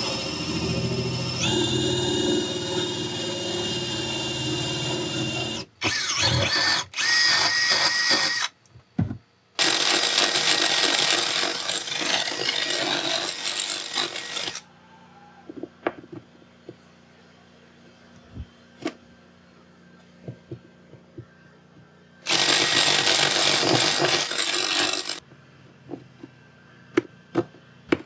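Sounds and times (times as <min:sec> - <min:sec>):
electric drill cutting fibreglass: 0:00.0 - 0:08.5, 0:09.6 - 0:14.6, 0:22.3 - 0:25.2.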